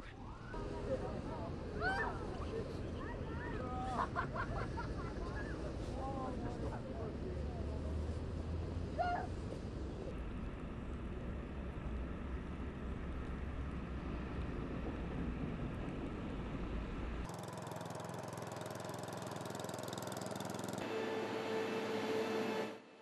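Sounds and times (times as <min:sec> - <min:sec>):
low engine-like rumble: 0:00.0 - 0:17.3.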